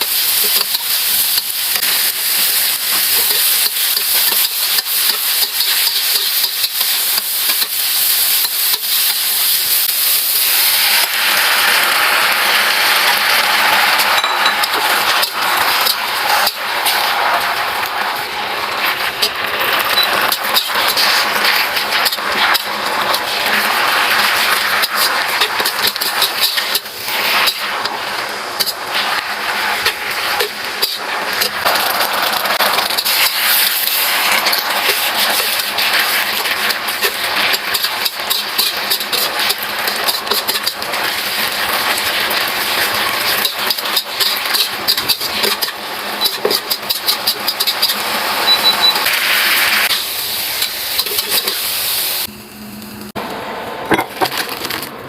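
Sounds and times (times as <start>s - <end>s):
food sizzling in a hot pan: 0.0s - 53.0s
utensil scraping pan: 13.0s - 49.2s.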